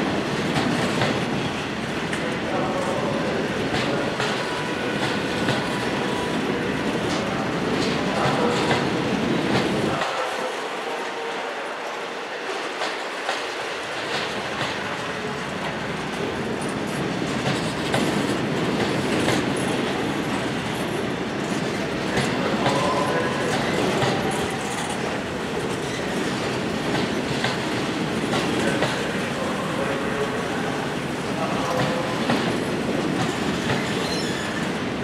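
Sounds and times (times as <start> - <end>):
train wheels clicking over rail joints: 0.1 - 10.2, 12.6 - 29.8, 31.1 - 34.7
faint wheel squeal: 33.8 - 34.6.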